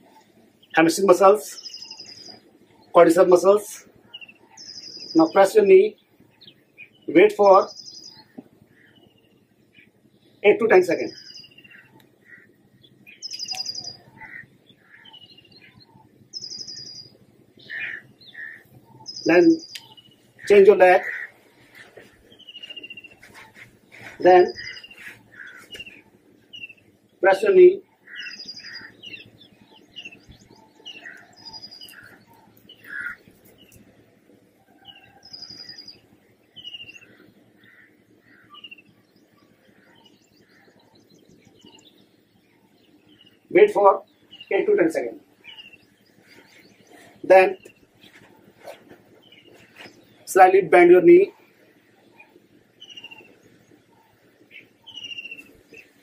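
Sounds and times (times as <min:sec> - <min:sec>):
soft bird chirps: 0:00.0 - 0:56.0
bird high rapid trill: 0:13.1 - 0:33.8, 0:43.2 - 0:56.0.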